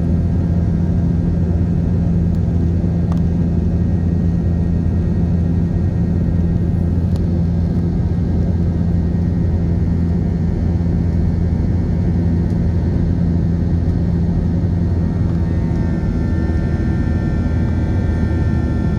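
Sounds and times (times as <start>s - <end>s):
airliner engines rumbling: 0.0s - 18.9s
high whining engine tones: 14.8s - 18.9s.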